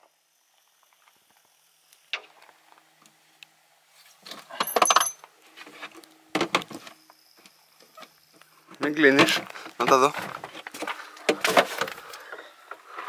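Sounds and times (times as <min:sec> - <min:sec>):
clattering rattle with metallic ring: 0:04.6 - 0:05.3.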